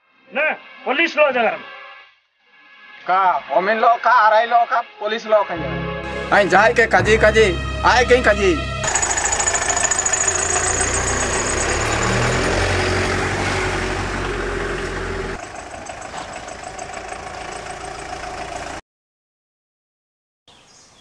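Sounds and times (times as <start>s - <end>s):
thin high whine: 7.8s - 12.9s
car engine running: 8.8s - 18.8s.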